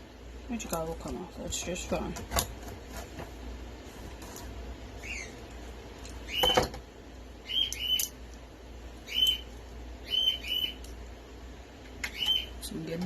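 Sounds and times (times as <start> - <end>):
bird chirping: 5.0 - 5.4, 6.2 - 6.6, 7.4 - 8.2, 9.0 - 10.9, 12.0 - 12.6.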